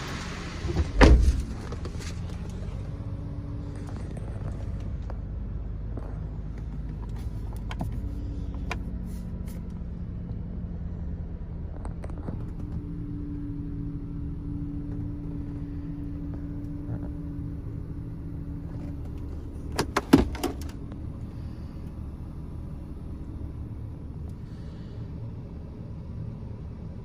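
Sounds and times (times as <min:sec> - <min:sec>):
car engine idling: 0:00.0 - 0:27.0
car door shutting and latching: 0:00.6 - 0:02.4, 0:18.7 - 0:20.8.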